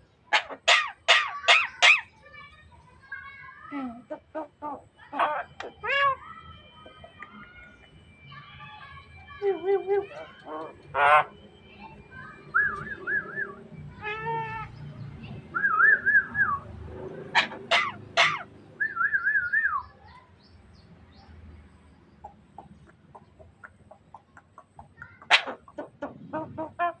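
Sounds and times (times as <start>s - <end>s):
myna whistled phrases: 12.2s - 13.6s, 18.8s - 19.9s
sharp rising whistles: 15.5s - 16.7s, 18.8s - 19.8s.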